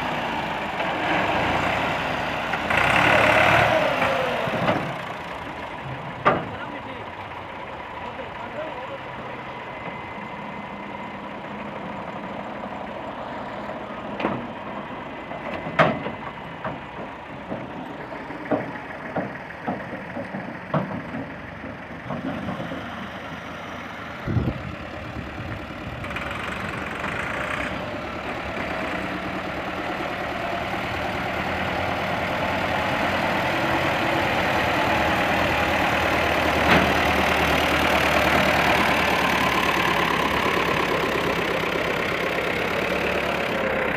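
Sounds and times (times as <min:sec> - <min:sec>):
tractor diesel engine: 0:00.0 - 0:43.9
sharp knocks and clanks: 0:06.2 - 0:06.6, 0:15.4 - 0:17.8, 0:18.4 - 0:22.9.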